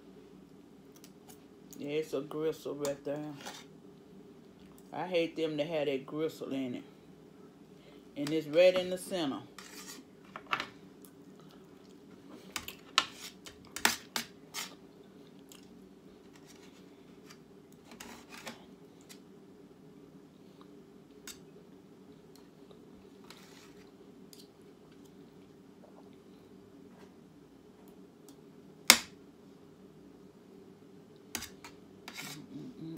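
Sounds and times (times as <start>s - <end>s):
steady low hum: 0.0s - 32.9s
person chewing food: 10.9s - 12.8s.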